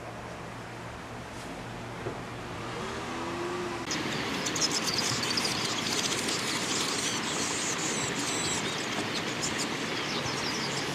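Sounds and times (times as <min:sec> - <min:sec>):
small birds chirping: 0:03.9 - 0:10.9.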